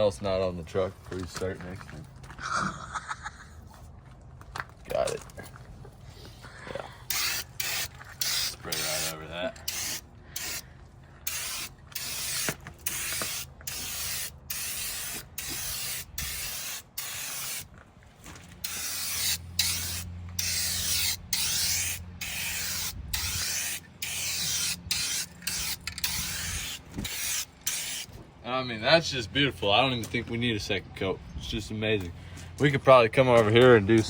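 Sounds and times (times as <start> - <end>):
spray paint can hissing: 7.1 - 9.1, 9.7 - 10.6, 11.3 - 17.7, 18.6 - 28.1.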